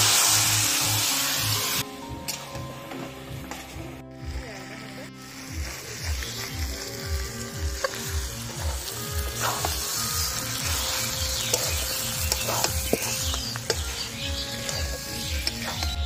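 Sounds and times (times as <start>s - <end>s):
meat sizzling in oil: 0.0s - 1.8s, 4.2s - 16.0s
background music with steady beat: 0.0s - 16.0s
metal spatula scraping pan: 6.0s - 15.9s.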